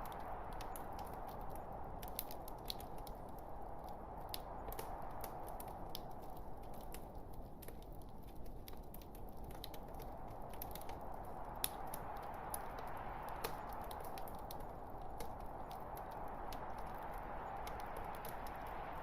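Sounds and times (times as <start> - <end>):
wood popping and crackling: 0.0 - 19.0
fire flame rushing: 8.9 - 19.0.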